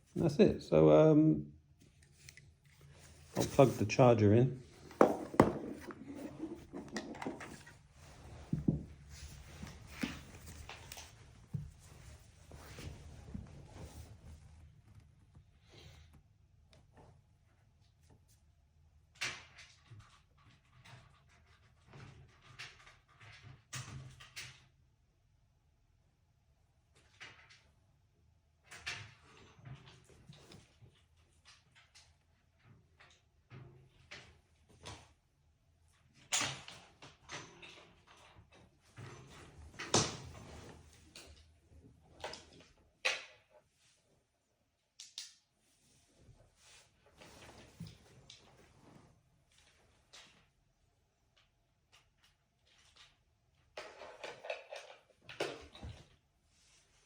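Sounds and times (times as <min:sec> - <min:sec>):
handling clicks and knocks: 0:04.7 - 0:07.8
handling knocks and clicks: 0:04.7 - 0:12.9.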